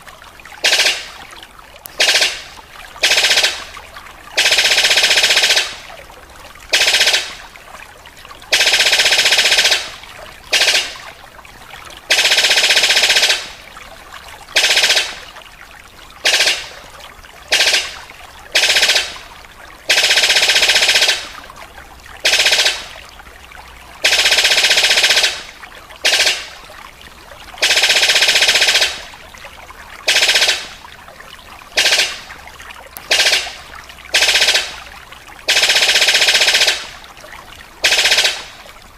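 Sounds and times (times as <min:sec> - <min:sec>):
bird rattling call: 0:17.5 - 0:18.0, 0:24.0 - 0:26.5, 0:31.8 - 0:32.2, 0:33.1 - 0:34.8.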